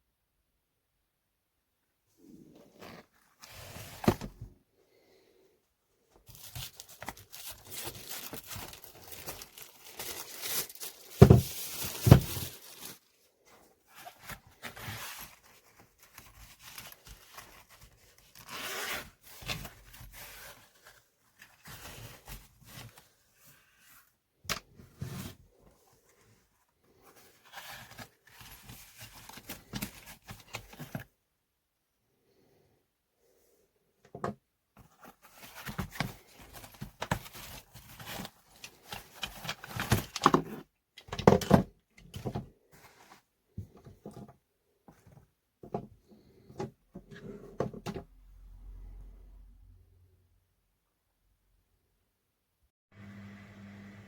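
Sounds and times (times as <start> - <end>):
rustling and scraping: 6.2 - 31.1, 42.0 - 48.0.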